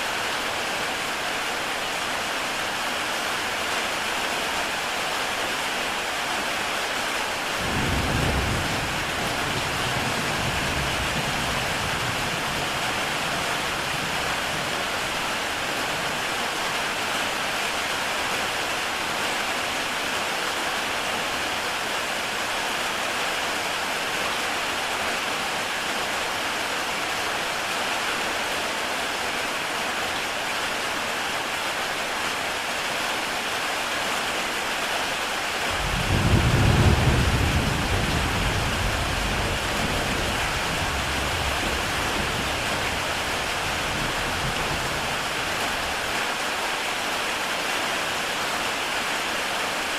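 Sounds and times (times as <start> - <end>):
heavy rain on a tile roof: 0.0 - 49.9
low rumble of thunder: 7.6 - 14.9, 35.7 - 46.0.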